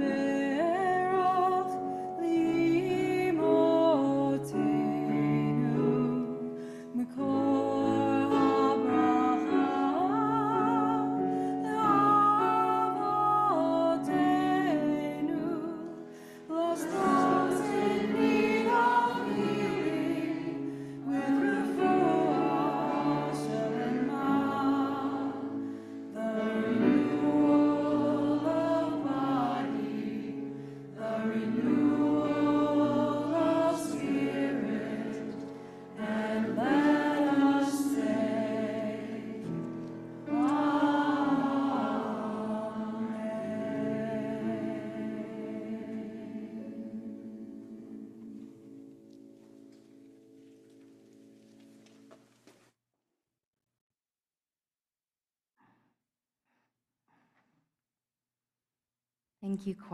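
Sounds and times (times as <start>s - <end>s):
choir singing: 7.0s - 48.8s.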